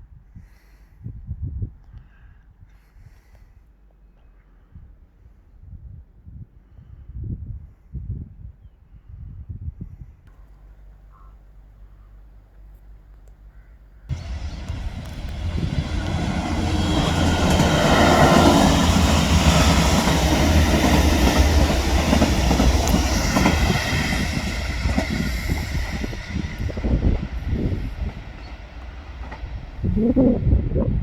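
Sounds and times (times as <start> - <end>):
train wheels clattering on rails: 14.1 - 29.8.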